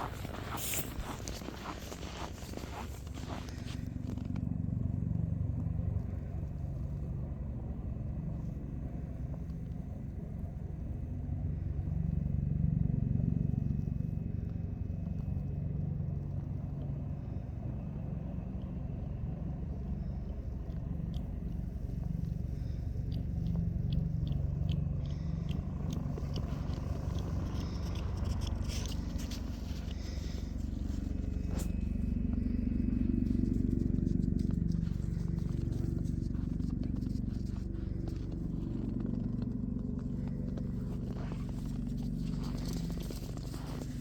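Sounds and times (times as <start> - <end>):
light clicks and scrapes: 0.0 - 4.5, 19.8 - 44.0
motor engine humming: 0.0 - 44.0.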